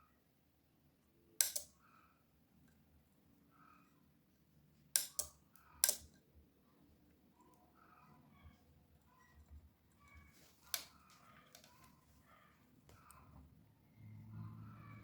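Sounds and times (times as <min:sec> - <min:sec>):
relay clicking: 0:01.4 - 0:01.7.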